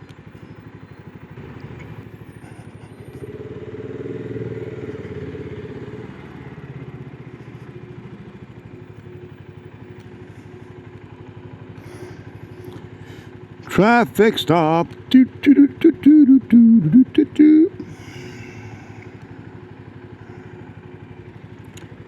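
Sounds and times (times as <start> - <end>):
motorcycle engine running: 0.6 - 13.7, 17.5 - 22.0.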